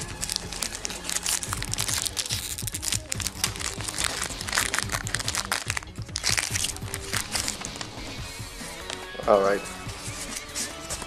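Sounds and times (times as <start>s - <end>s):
foil wrapper crinkling: 0.0s - 8.0s
background music: 0.0s - 11.0s.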